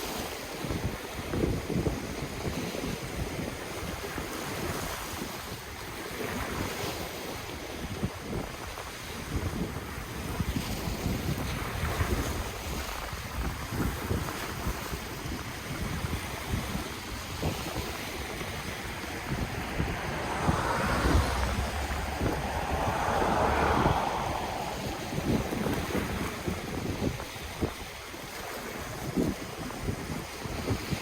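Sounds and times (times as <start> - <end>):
wind buffeting microphone: 7.8 - 31.0
ocean waves washing in: 16.1 - 28.8.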